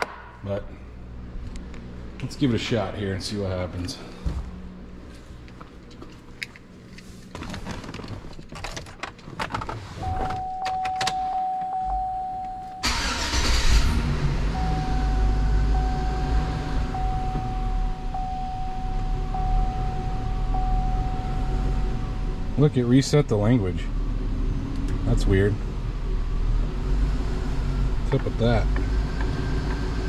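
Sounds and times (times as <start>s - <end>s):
clicks and knocks of getting in: 5.6s - 11.8s
car chime tone: 10.0s - 13.4s, 14.5s - 22.4s
engine cranking and running: 12.8s - 14.7s.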